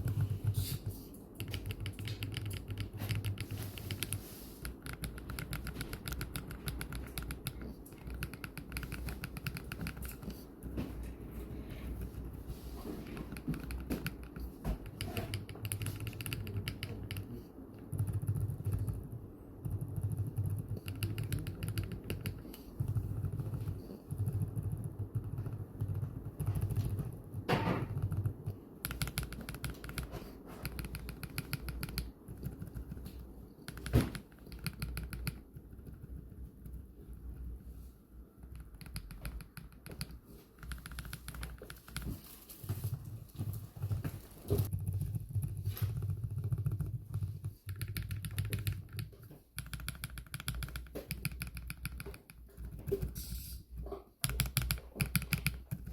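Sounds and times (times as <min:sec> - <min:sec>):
mechanical keyboard typing: 0:00.0 - 0:10.8, 0:13.1 - 0:37.0, 0:38.4 - 0:44.0, 0:44.6 - 0:55.9.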